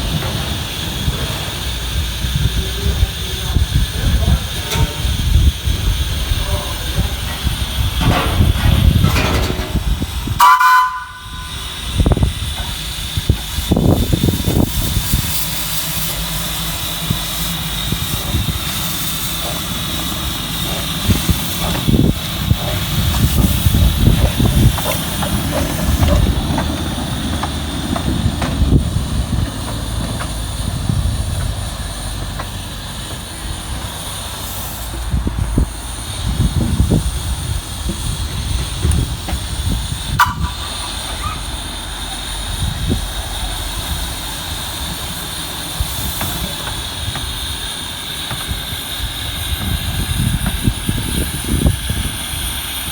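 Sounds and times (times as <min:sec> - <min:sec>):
train rumbling past: 0:00.0 - 0:52.9
train whistle: 0:10.4 - 0:12.1, 0:40.1 - 0:41.5.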